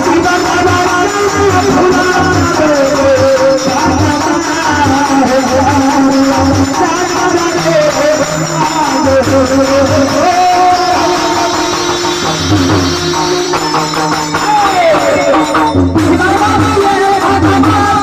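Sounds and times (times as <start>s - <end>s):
devotional singing: 0.0s - 13.7s
instrumental accompaniment: 0.0s - 18.0s.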